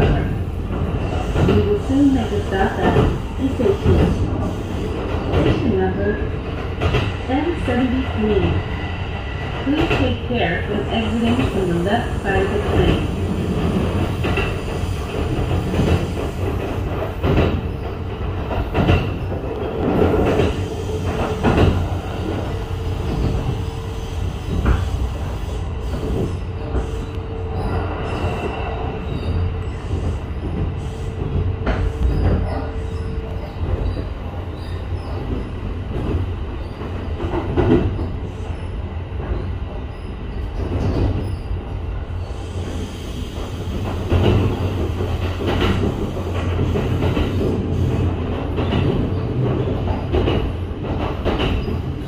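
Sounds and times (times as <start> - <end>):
train rumbling inside carriage: 0.0 - 52.0.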